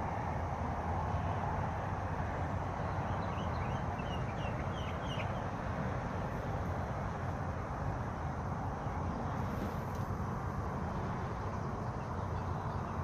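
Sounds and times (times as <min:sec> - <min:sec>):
bird chirping: 0:02.9 - 0:05.5.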